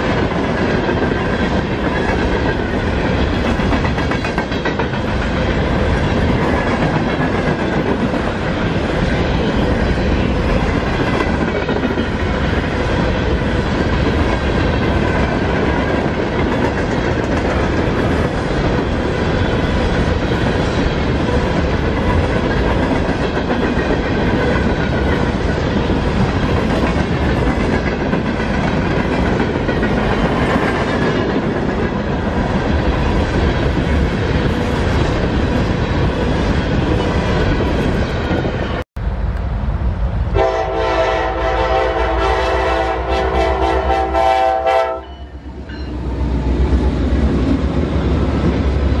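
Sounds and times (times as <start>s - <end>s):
freight train wheels rumbling: 0.0s - 49.0s
locomotive horn blast: 40.4s - 45.4s.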